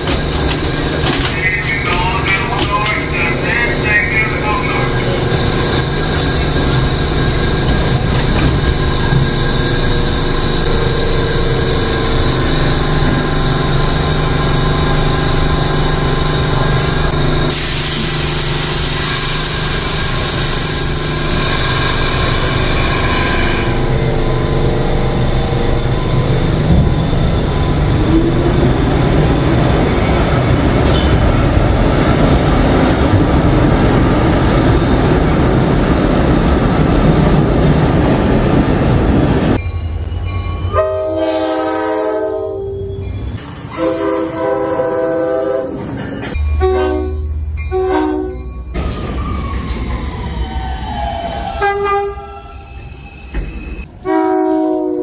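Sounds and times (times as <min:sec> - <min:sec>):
subway train wheels rumbling: 0:00.0 - 0:55.0
train horn blasts: 0:22.8 - 0:24.3, 0:40.7 - 0:43.0, 0:43.7 - 0:45.8, 0:46.4 - 0:48.4, 0:51.6 - 0:52.3, 0:53.9 - 0:55.0.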